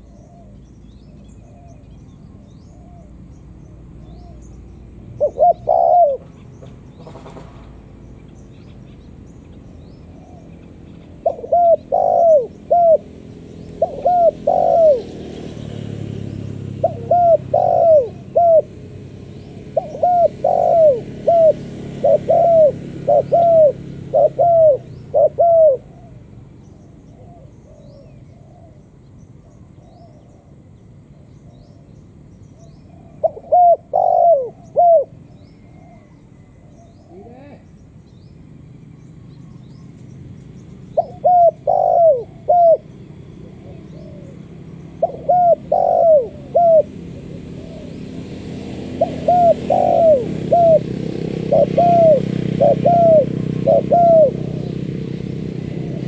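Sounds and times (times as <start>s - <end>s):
dove cooing: 0.0s - 7.6s, 9.9s - 30.6s, 31.4s - 37.8s, 40.7s - 56.0s.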